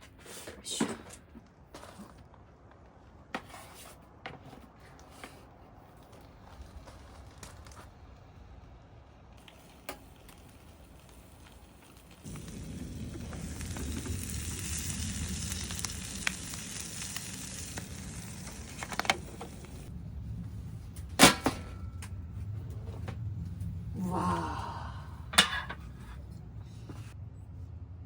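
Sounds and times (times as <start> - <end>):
food sizzling in a hot pan: 12.2 - 19.8.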